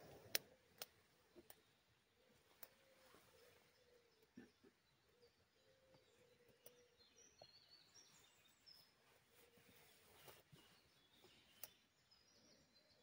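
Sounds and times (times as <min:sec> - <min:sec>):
faint sharp clicks: 0:00.0 - 0:01.7, 0:02.5 - 0:02.9, 0:05.9 - 0:06.8, 0:11.2 - 0:11.8
faint bird chirps: 0:00.0 - 0:13.0.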